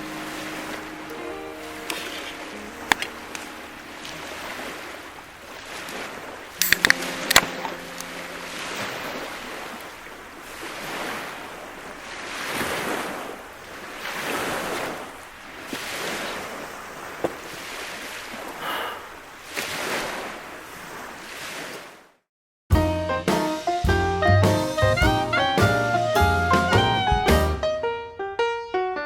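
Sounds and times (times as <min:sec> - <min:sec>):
waves washing against shore: 0:00.0 - 0:22.2.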